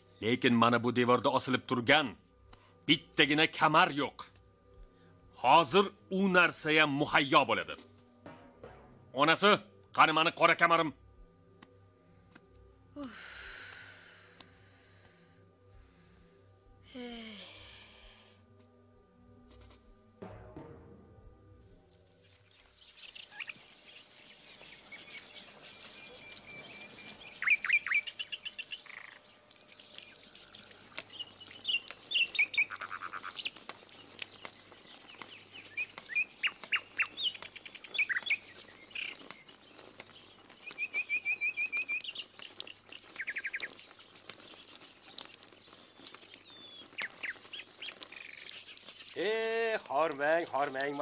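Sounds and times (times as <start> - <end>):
small songbirds chirping and trilling: 22.2 - 51.0.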